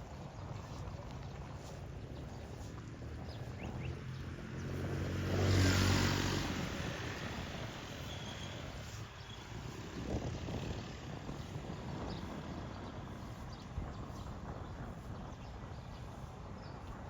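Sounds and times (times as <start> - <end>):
motor vehicle passing by: 2.7 - 13.5.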